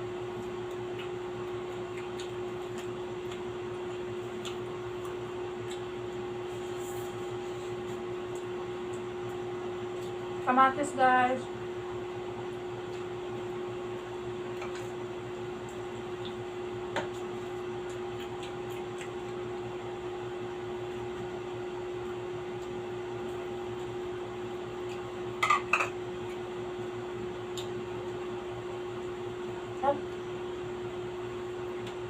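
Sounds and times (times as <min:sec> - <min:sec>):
appliance humming: 0:00.0 - 0:32.0
eating and dish sounds: 0:00.7 - 0:10.2, 0:15.6 - 0:19.5, 0:24.8 - 0:26.5.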